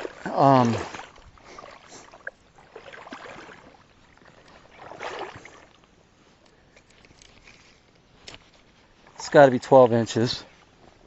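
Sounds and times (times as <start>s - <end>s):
soft water sounds: 0.0s - 11.0s.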